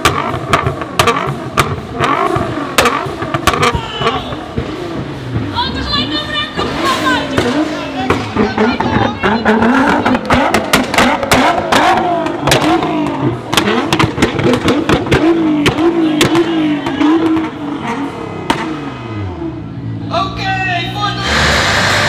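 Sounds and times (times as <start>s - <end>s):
exhaust pops and bangs: 0.0s - 19.2s
car engine revving hard: 0.0s - 19.9s, 21.1s - 22.0s.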